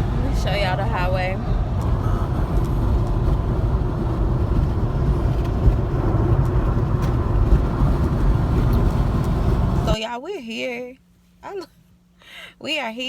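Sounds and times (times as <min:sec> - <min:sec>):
tyre and road noise: 0:00.0 - 0:10.0.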